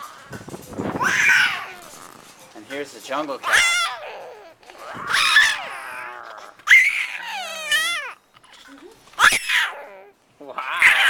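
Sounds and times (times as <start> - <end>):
child shrieking like roars: 1.0 - 2.0, 3.4 - 8.2, 9.2 - 10.1.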